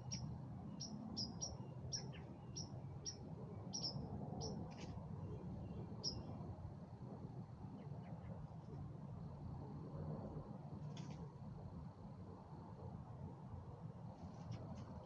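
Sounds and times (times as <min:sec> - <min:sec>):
bird chirping: 0:00.0 - 0:06.3.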